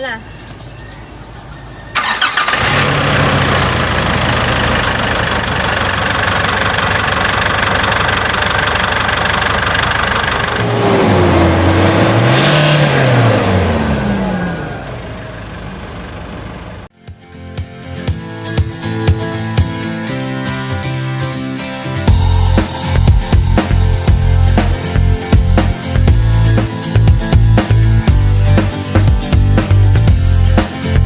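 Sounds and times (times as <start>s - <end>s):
diesel engine running and revving: 1.3s - 16.9s, 22.1s - 30.7s.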